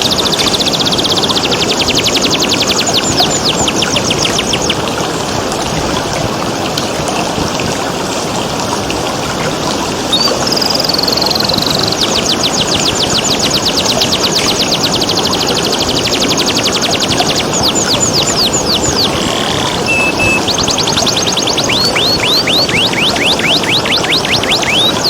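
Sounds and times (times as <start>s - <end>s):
canary singing trills: 0.0s - 4.8s, 10.1s - 25.0s
flowing water rushing: 0.0s - 25.0s.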